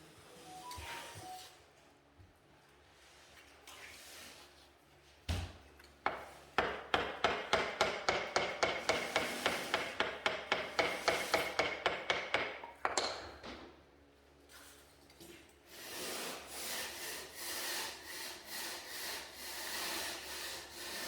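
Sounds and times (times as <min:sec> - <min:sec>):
hammer striking: 0:06.1 - 0:13.4.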